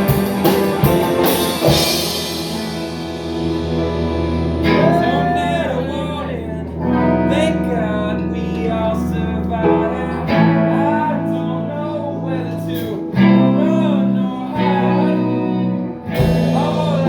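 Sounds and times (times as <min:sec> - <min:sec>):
strummed guitar chords: 0:00.0 - 0:17.0
person singing: 0:04.6 - 0:17.0.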